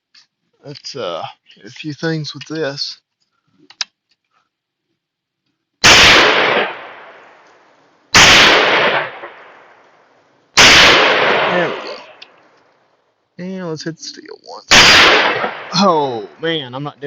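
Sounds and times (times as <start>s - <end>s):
rifle shots with echo: 5.8s - 7.4s, 8.2s - 9.8s, 10.6s - 12.2s, 14.7s - 16.0s.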